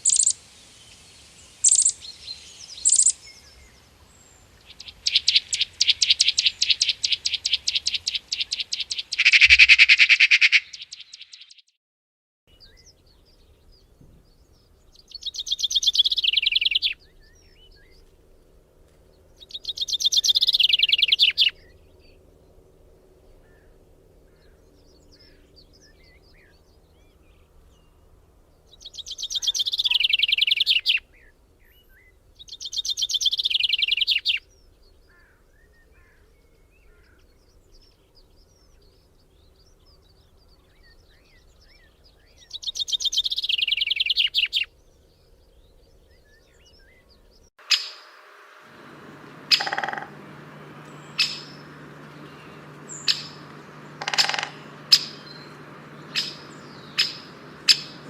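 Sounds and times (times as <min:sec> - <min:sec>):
bird singing trilled phrases: 0:00.0 - 0:00.4, 0:01.4 - 0:11.7, 0:12.5 - 0:18.1, 0:19.3 - 0:22.2, 0:28.6 - 0:58.0
faint bird chirps: 0:00.0 - 0:11.7, 0:28.8 - 0:58.0.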